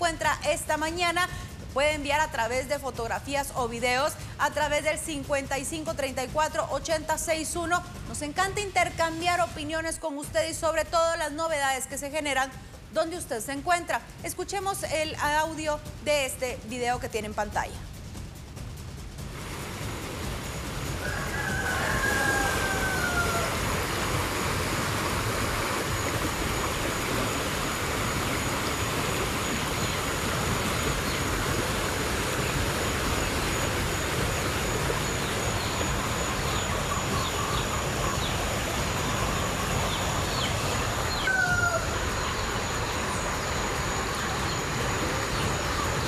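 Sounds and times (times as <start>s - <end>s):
heavy rain pouring: 19.3s - 46.0s.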